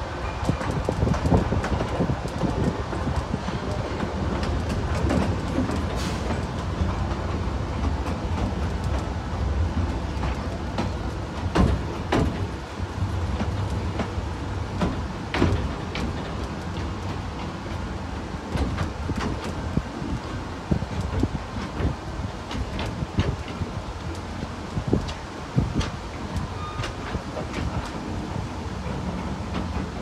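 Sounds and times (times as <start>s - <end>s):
miniature train rumbling on track: 0.0s - 30.0s
sharp track clicks: 0.4s - 20.2s.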